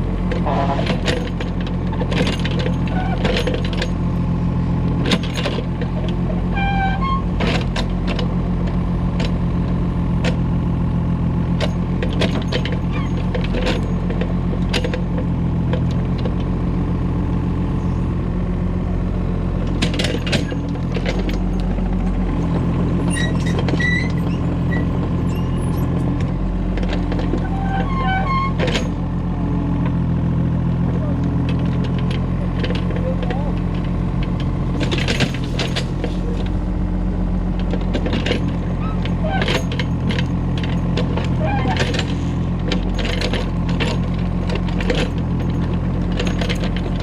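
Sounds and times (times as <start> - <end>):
excavator diesel engine running: 0.0 - 47.0
metal clanks and knocks: 0.3 - 4.1, 11.6 - 16.4, 19.7 - 29.0, 31.4 - 47.0.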